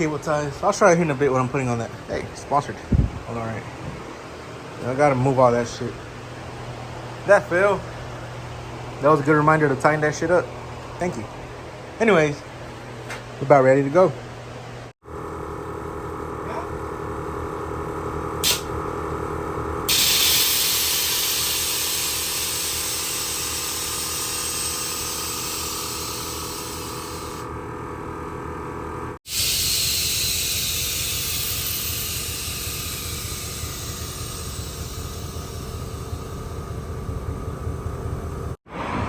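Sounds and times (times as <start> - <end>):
air suspension hissing: 19.9 - 27.4, 29.3 - 36.4.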